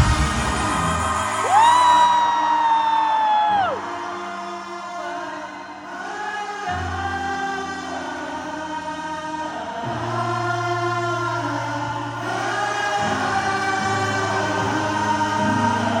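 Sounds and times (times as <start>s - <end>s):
sustained bass notes: 0.0s - 1.5s.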